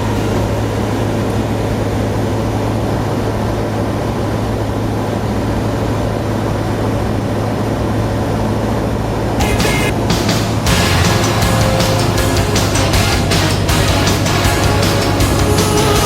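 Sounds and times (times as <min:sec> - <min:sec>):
light aircraft engine droning: 0:00.0 - 0:09.4.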